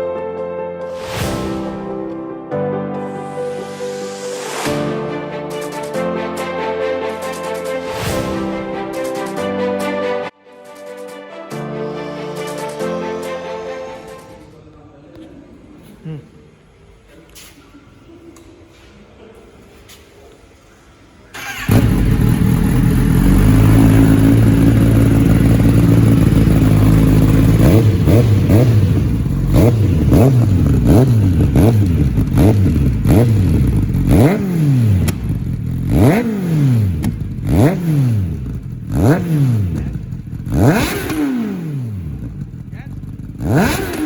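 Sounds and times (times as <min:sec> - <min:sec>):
motorcycle engine idling: 0:21.4 - 0:44.0
motorcycle engine revving: 0:21.4 - 0:44.0.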